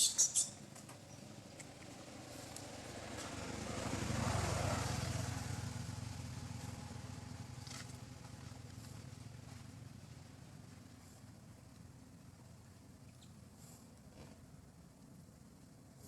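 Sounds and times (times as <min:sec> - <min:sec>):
vehicle passing by: 0:01.4 - 0:09.9.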